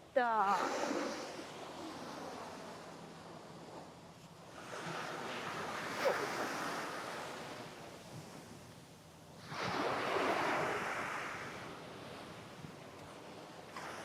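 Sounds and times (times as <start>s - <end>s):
small waves breaking on beach: 0.2s - 8.6s, 9.4s - 14.0s.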